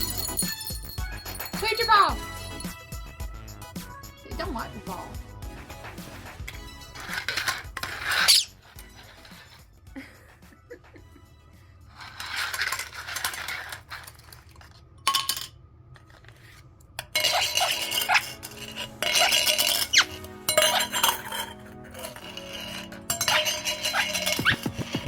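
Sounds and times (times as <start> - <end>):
lids clattering on hard floor: 12.2 - 15.6, 17.0 - 25.0.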